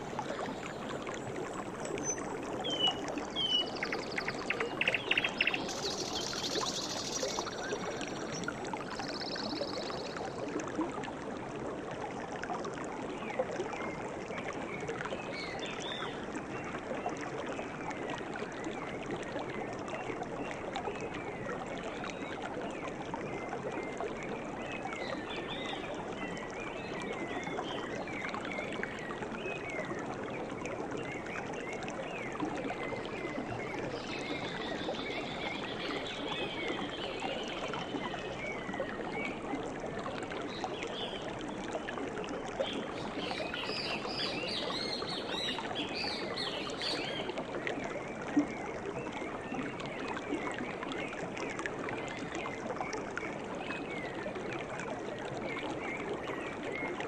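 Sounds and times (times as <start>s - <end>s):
flowing stream water: 0.0s - 57.0s
birds chirping: 2.0s - 10.1s.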